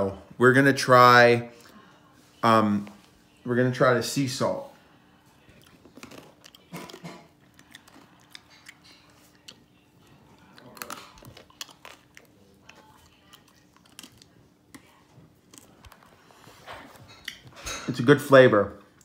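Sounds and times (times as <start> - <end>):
person chewing crunchy food: 5.5 - 16.4.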